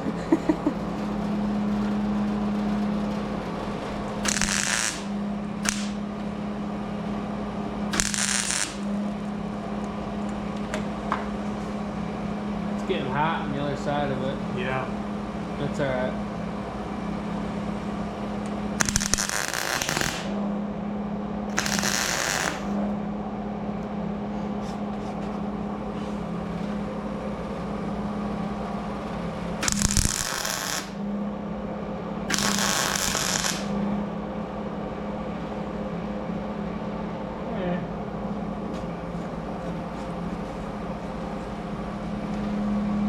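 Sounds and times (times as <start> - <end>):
welding arc crackling: 0.0 - 6.1, 7.9 - 9.2, 18.8 - 20.4, 21.5 - 22.8, 29.6 - 31.0, 32.3 - 33.8
steady low hum: 0.0 - 43.0.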